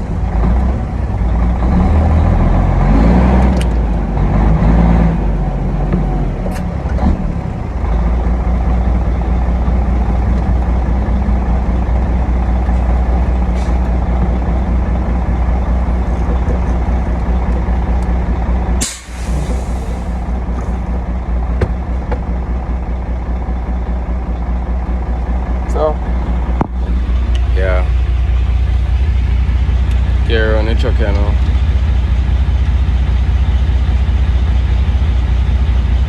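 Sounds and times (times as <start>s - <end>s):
diesel truck engine running: 0.0s - 36.0s
air release hiss: 18.8s - 20.2s.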